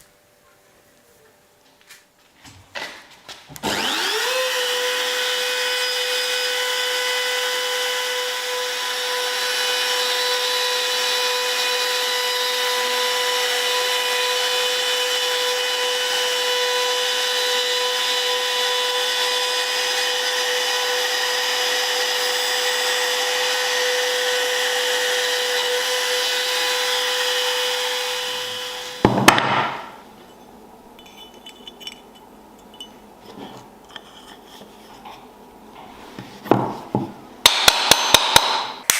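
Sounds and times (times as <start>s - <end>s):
power tool whining: 3.6s - 30.0s.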